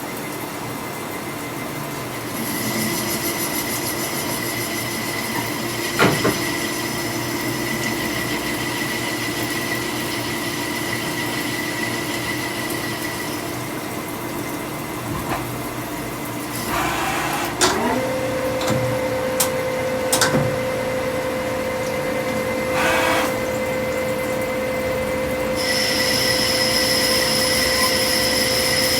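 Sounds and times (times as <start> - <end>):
boring machine metallic whine: 16.6 - 28.9
higher-pitched machine tones: 22.7 - 28.9.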